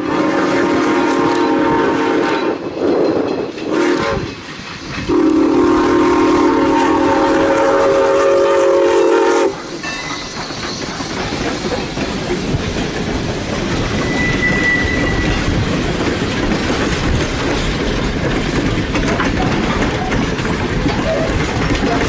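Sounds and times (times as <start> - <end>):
train chime horn blasts: 0.0 - 2.6, 5.1 - 9.7
rail rumble and wheel clatter: 0.0 - 22.0.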